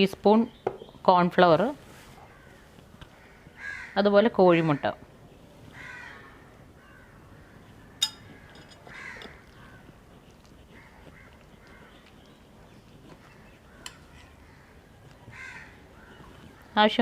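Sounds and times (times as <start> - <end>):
crows cawing faintly: 2.2 - 5.0, 5.7 - 12.3, 13.2 - 16.8.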